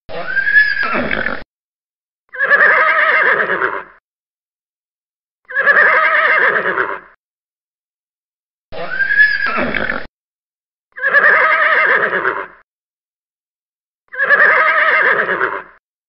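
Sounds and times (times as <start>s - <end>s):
horse whinnying: 0.1s - 1.4s, 2.3s - 4.0s, 5.5s - 7.2s, 8.7s - 10.1s, 11.0s - 12.6s, 14.1s - 15.8s.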